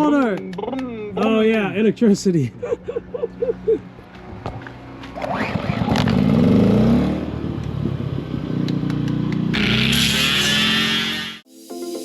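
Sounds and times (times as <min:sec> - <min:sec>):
music: 0:11.4 - 0:12.0.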